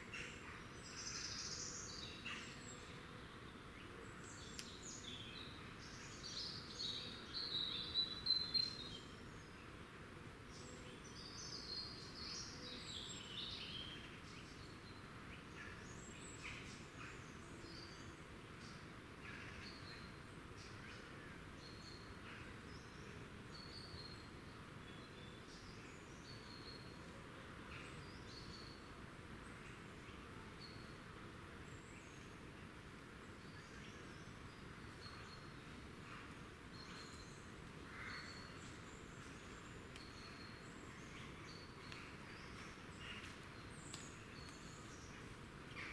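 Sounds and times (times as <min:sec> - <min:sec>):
low background hiss: 0:00.0 - 0:45.9
small birds chirping: 0:00.1 - 0:09.6, 0:33.1 - 0:45.9.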